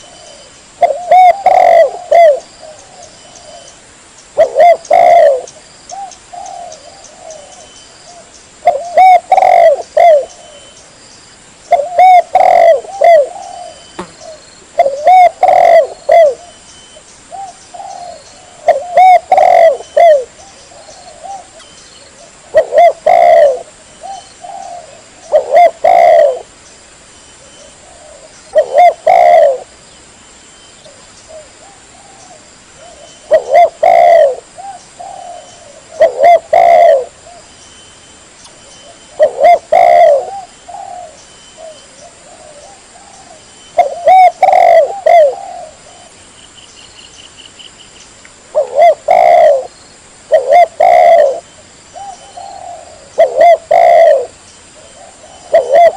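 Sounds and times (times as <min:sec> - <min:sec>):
dove cooing: 0:00.0 - 0:03.8, 0:04.4 - 0:10.8, 0:11.7 - 0:16.6, 0:17.3 - 0:26.5, 0:27.4 - 0:29.7, 0:30.9 - 0:37.5, 0:38.8 - 0:46.2, 0:48.5 - 0:49.7, 0:50.3 - 0:55.9.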